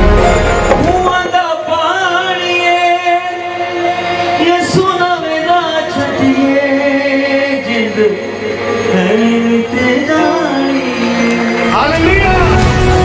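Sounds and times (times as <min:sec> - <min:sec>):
instrumental accompaniment: 0:00.0 - 0:02.6.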